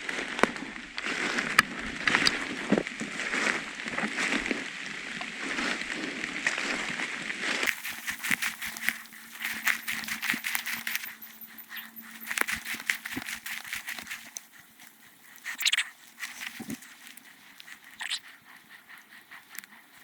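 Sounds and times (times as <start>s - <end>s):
footsteps through fallen leaves: 7.7s - 18.0s.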